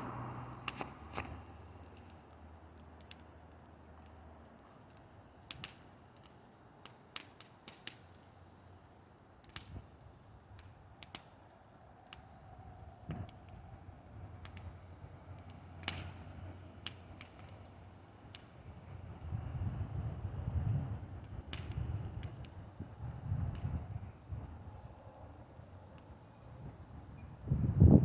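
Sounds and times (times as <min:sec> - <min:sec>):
bonfire crackling and popping: 0:00.0 - 0:28.0.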